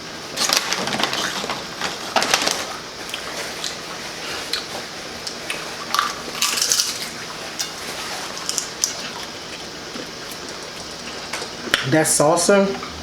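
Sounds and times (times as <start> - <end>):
chips being crunched: 4.5 - 9.3.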